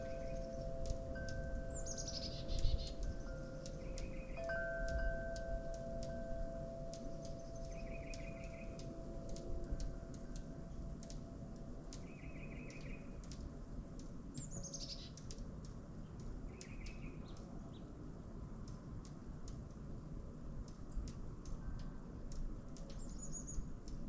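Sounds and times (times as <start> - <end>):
buzzy bird trill: 0.0 - 11.3
low steady hiss: 0.0 - 24.0.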